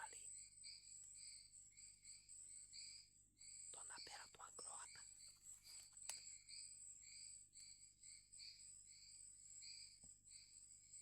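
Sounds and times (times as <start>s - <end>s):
insect chirping call: 0.0s - 11.0s
faint click: 5.7s - 6.3s.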